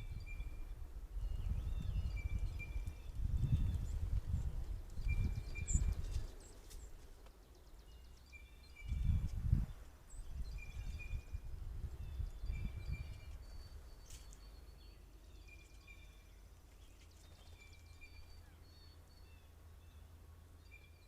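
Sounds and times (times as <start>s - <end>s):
low rumbling wind gusts: 0.0s - 7.7s, 8.4s - 14.0s.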